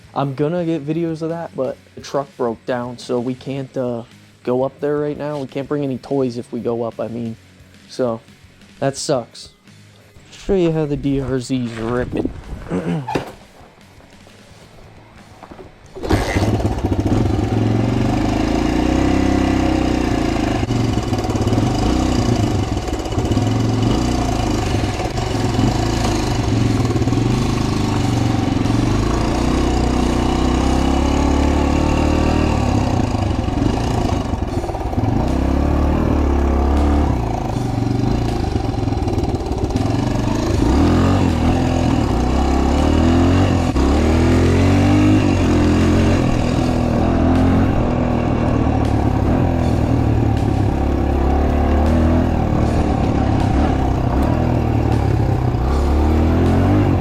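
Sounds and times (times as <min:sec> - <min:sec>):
motorcycle engine revving: 0:15.8 - 0:57.0.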